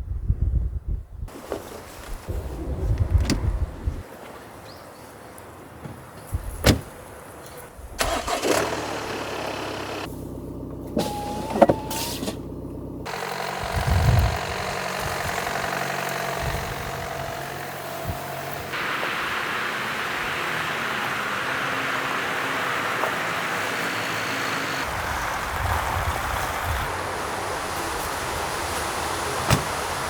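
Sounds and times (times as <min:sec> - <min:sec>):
motor running: 0:08.0 - 0:10.1, 0:13.0 - 0:20.4.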